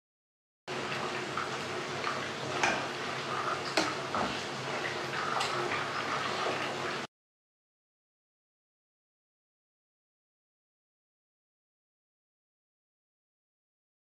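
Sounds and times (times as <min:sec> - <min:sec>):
chicken sizzling in a pan: 0:00.7 - 0:07.1.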